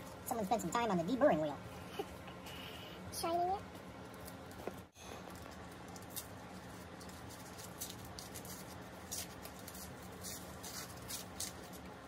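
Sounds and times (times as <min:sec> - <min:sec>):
wrapping rustling and ticking: 0:03.6 - 0:12.0.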